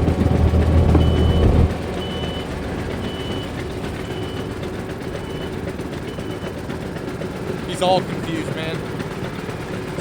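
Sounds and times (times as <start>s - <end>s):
low rumble: 0.0s - 2.7s
reversing alarm beeping: 0.2s - 6.6s.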